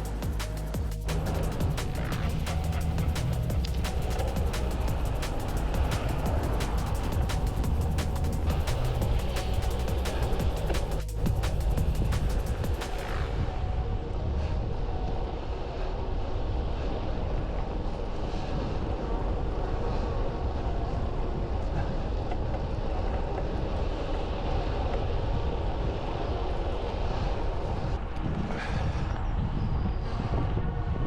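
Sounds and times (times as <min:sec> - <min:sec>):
bicycle road noise: 0:00.0 - 0:31.0
wind rumble: 0:00.0 - 0:31.0.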